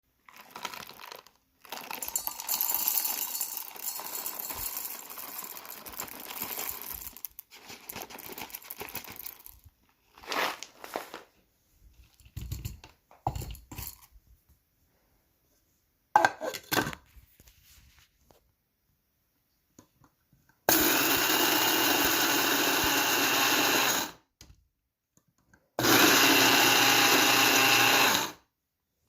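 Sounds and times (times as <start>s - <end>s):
crinkling and rustling: 0.2s - 2.2s, 4.1s - 14.6s.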